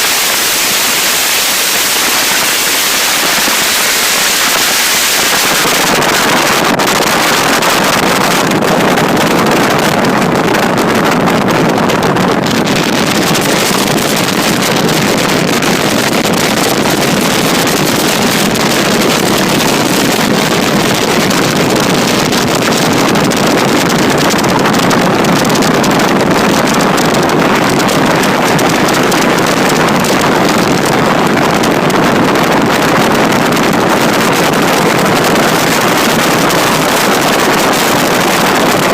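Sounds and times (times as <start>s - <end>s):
loud wind noise on microphone: 0.0s - 38.9s.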